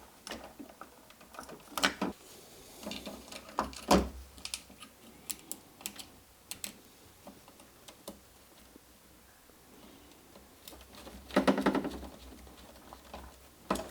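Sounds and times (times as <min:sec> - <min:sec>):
small clicks and taps of parts: 0:02.8 - 0:08.7, 0:10.1 - 0:13.9.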